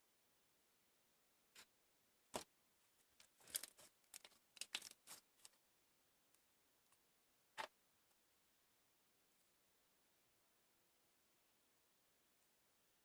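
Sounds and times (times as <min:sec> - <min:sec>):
small clicks and rustles: 0:02.3 - 0:05.6.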